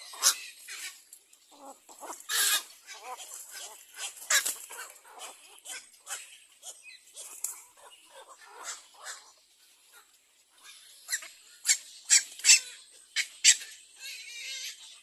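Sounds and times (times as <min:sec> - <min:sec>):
bird chicks rasping calls: 0:00.0 - 0:15.0.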